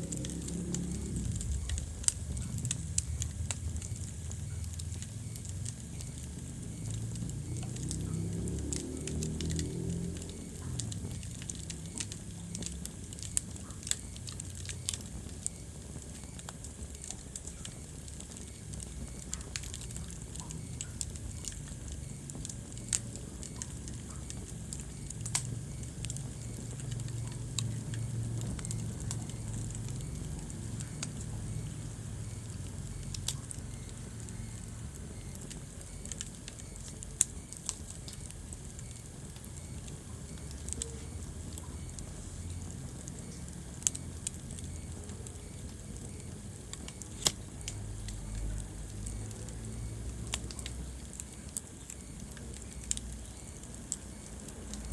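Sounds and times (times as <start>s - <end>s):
burning logs crackling and popping: 0.0s - 54.9s
low rumble of flames: 0.0s - 54.9s.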